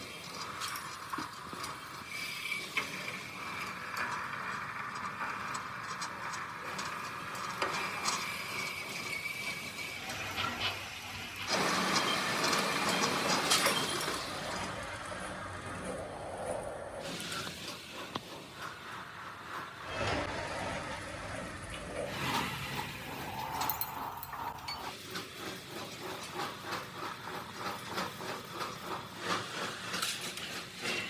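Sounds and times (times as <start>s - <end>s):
machinery humming with whine: 8.4s - 24.9s
metallic clicks and ticks: 23.4s - 24.9s.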